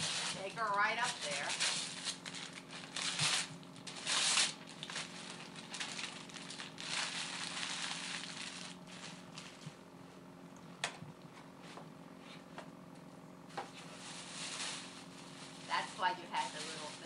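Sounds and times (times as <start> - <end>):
wrapping paper crinkling and tearing: 0.0 - 9.6, 13.8 - 17.0.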